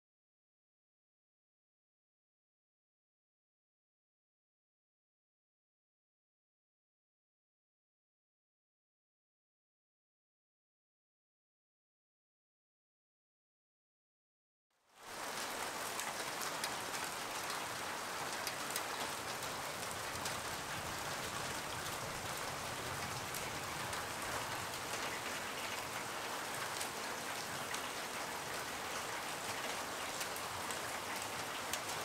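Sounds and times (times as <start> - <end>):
heavy rain on roofs: 14.9 - 32.0.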